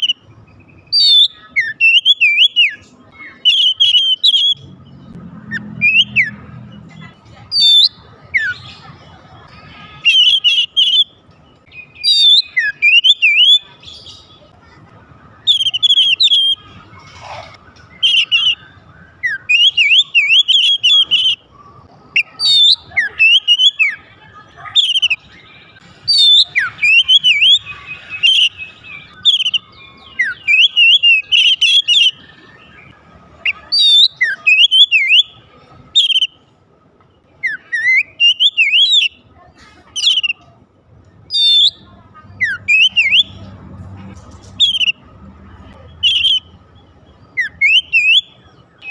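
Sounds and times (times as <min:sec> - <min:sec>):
bird singing chirps and whistles: 0:00.0 - 0:04.7, 0:05.5 - 0:06.4, 0:07.5 - 0:08.7, 0:10.0 - 0:14.3, 0:15.4 - 0:16.8, 0:17.8 - 0:21.4, 0:22.1 - 0:24.0, 0:24.7 - 0:35.4, 0:36.0 - 0:36.4, 0:37.4 - 0:39.2, 0:40.0 - 0:40.4, 0:41.3 - 0:43.4, 0:44.6 - 0:45.0, 0:46.0 - 0:46.6, 0:47.3 - 0:48.9.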